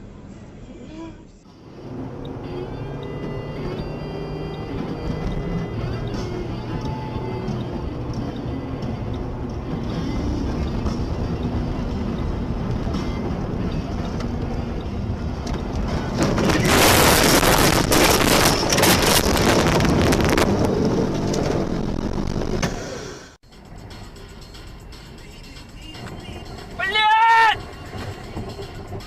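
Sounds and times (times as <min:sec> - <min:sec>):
car engine and road rumble: 0:00.0 - 0:29.0
loud rushing noise: 0:15.8 - 0:23.4.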